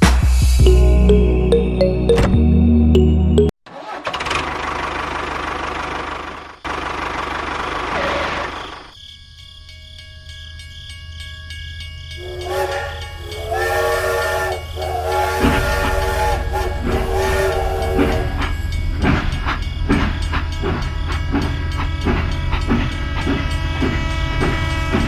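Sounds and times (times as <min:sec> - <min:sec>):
horn sounding a chord: 0:00.6 - 0:03.5, 0:12.2 - 0:18.6.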